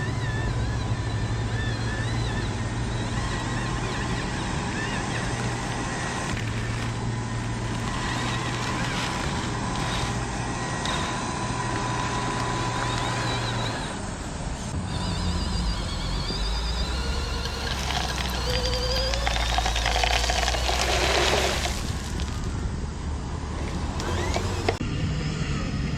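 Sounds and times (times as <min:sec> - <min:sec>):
motor hum: 0:00.0 - 0:25.7
high warbling whine: 0:13.7 - 0:23.0.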